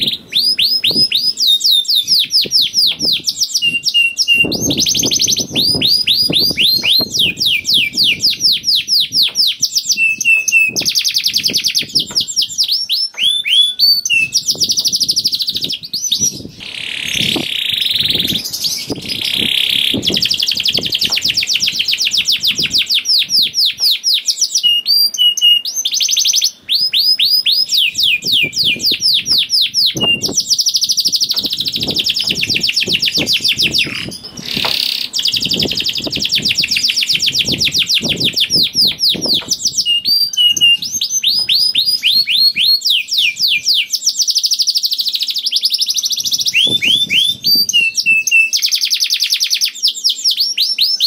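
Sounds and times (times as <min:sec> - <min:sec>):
canary singing trills: 0:00.0 - 0:51.0.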